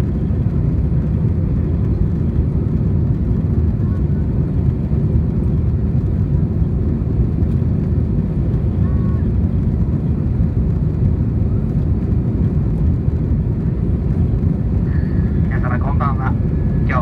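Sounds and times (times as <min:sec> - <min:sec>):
airplane cabin noise: 0:00.0 - 0:17.0.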